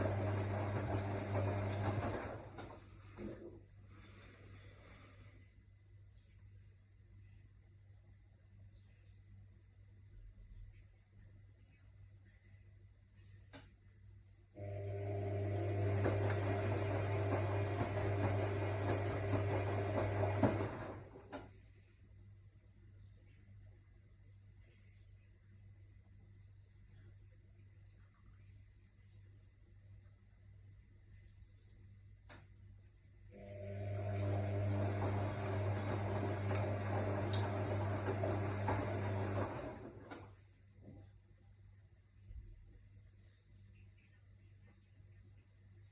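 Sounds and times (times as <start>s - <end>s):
washing machine drum humming: 0.0s - 3.4s, 14.6s - 21.5s, 33.4s - 40.4s.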